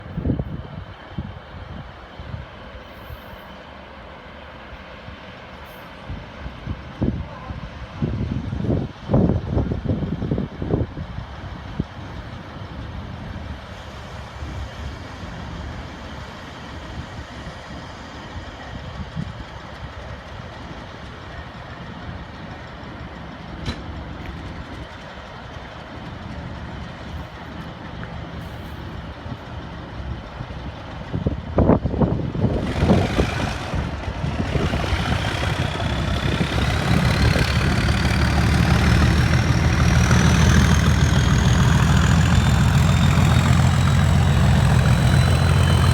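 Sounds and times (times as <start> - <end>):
diesel train engine idling: 0.0 - 45.9
loud bursts of noise: 32.4 - 45.9.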